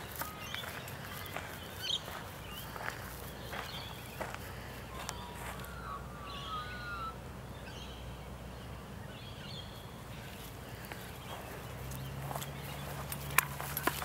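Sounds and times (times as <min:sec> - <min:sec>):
birds calling: 0:00.0 - 0:14.0
low outdoor rumble: 0:00.0 - 0:14.0
warbling bird whistle: 0:04.9 - 0:07.2.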